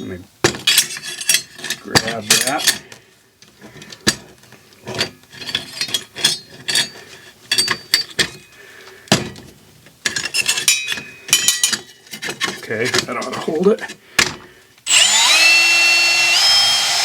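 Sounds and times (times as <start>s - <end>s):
metal clanking: 9.1s - 14.4s.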